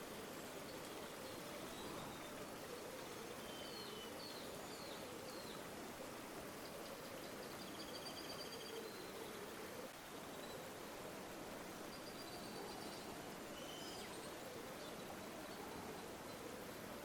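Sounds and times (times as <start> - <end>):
river water burbling: 0.0 - 7.8
faint bird chirps: 0.7 - 5.6, 6.6 - 9.4, 11.9 - 16.6.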